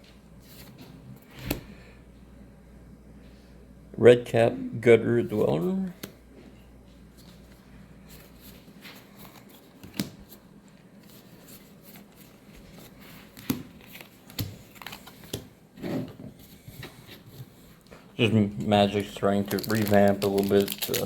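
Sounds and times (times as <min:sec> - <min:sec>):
cards rustling: 0:07.1 - 0:15.5, 0:18.6 - 0:21.0.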